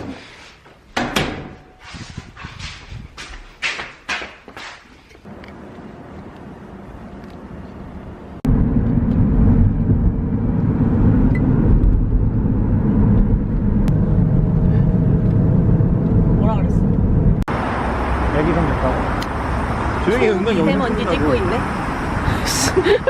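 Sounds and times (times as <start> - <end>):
car road noise rumble: 5.2 - 23.0.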